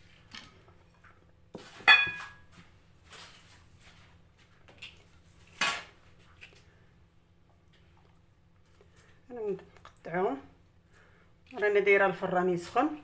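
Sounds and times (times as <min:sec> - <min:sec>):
metal kitchenware clinking: 0:01.8 - 0:02.4.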